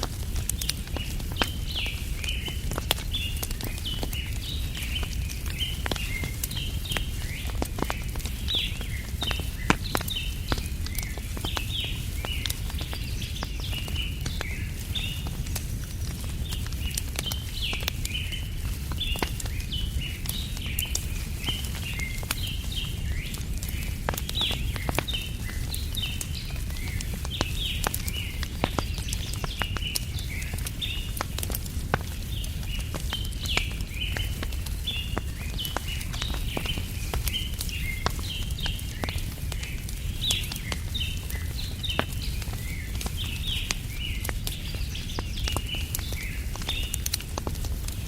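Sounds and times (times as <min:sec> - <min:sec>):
campfire crackling and popping: 0:00.0 - 0:48.0
small birds chirping: 0:00.1 - 0:48.0.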